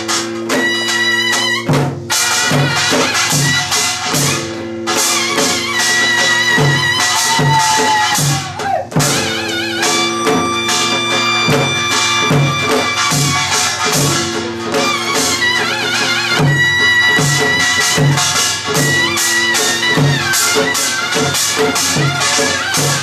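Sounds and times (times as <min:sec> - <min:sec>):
drum strokes: 0:00.0 - 0:23.0
wavering wind or bowed melody: 0:09.2 - 0:21.5.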